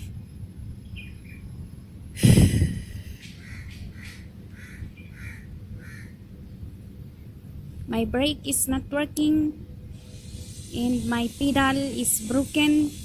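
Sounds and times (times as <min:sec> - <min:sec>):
bird calling harshly: 0:03.2 - 0:06.2.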